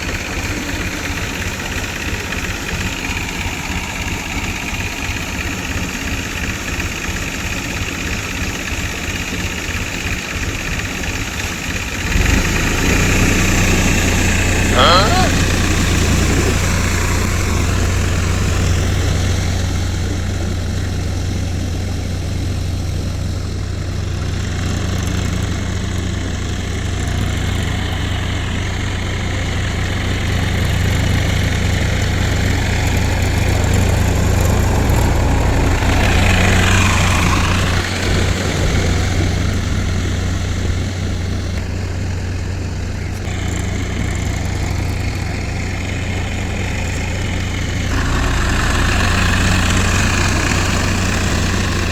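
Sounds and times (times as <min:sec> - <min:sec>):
tractor diesel engine running: 0:00.0 - 0:51.9
rush of noise: 0:47.9 - 0:51.9.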